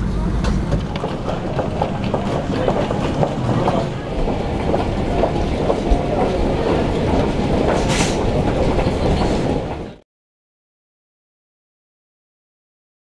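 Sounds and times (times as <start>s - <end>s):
vehicle rumbling from inside: 0.0s - 10.0s.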